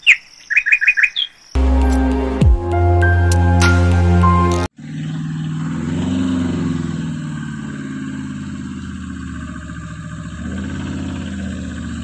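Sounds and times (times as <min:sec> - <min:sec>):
tractor engine idling: 0:06.8 - 0:12.0.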